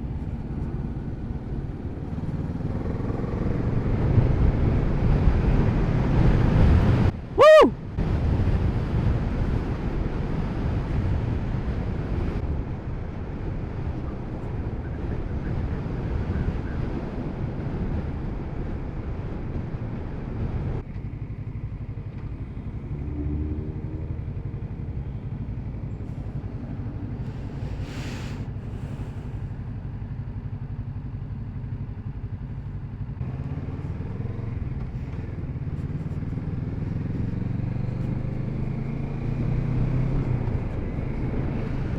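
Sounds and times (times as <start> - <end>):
motorcycle engine running: 0.0 - 6.2, 28.5 - 41.9
road rush: 0.0 - 41.9.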